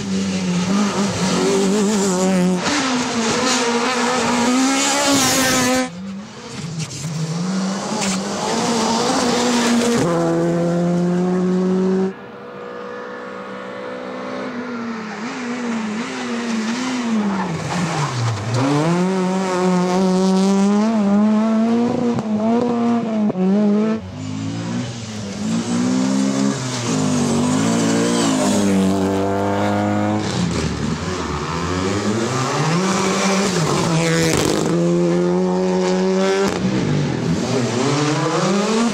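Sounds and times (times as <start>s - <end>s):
rally car engines revving: 0.0s - 38.9s.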